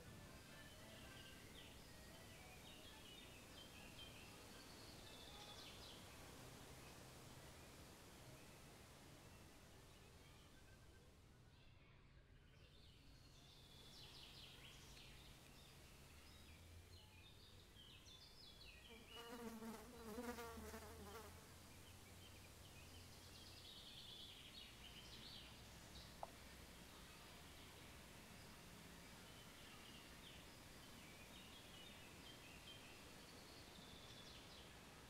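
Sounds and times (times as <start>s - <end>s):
fly buzzing: 18.9s - 21.5s.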